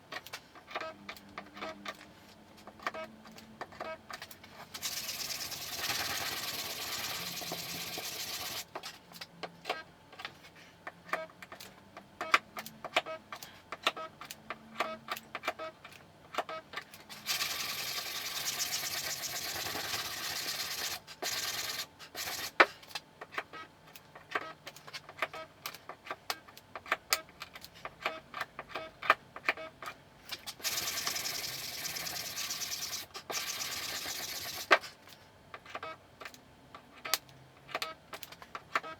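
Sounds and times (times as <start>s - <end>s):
power tool running: 30.6s - 34.7s.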